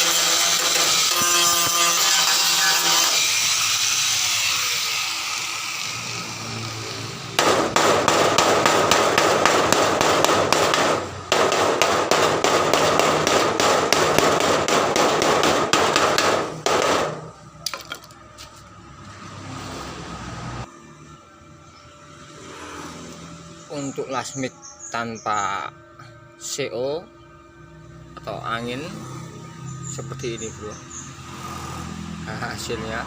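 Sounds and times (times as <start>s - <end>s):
welding arc crackling: 0.0s - 16.7s.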